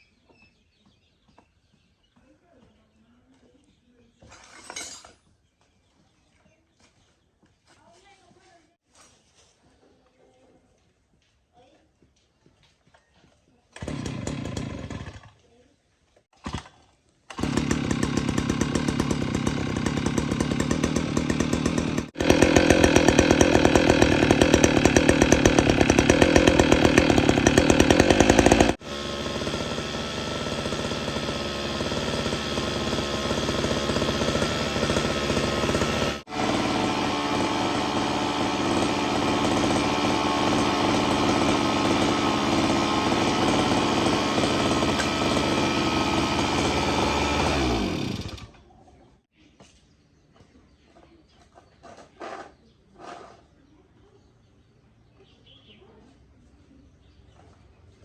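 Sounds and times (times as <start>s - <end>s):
small engine pulsing: 13.7s - 15.4s, 16.4s - 49.2s.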